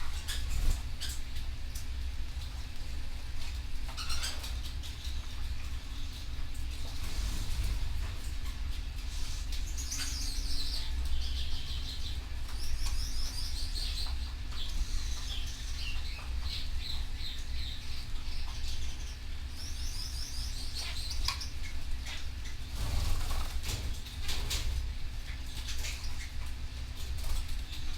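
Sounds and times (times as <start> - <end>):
canary singing trills: 0.0 - 1.4, 3.8 - 23.5.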